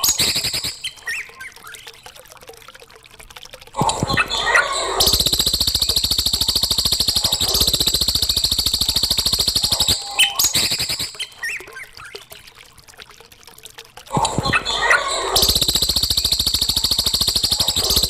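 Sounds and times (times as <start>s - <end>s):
songbird rattling trill: 0.0s - 1.4s, 5.0s - 11.8s, 14.8s - 18.0s
bird chirps: 0.0s - 1.5s, 4.4s - 12.0s.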